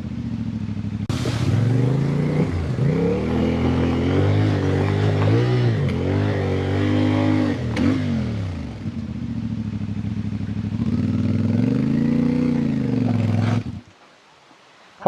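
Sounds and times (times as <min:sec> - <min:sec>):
motorcycle engine revving: 0:00.0 - 0:13.8.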